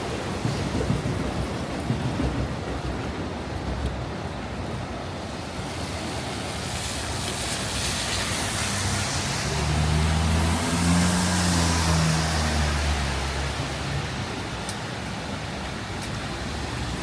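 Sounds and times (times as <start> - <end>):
rain: 0.0 - 17.0
tyres hissing on wet road: 3.4 - 17.0.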